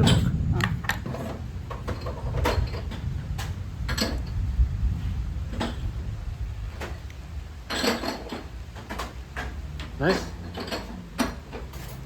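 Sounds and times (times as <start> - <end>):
steady low rumble: 0.0 - 10.5
utensils and containers clinking: 7.7 - 12.0.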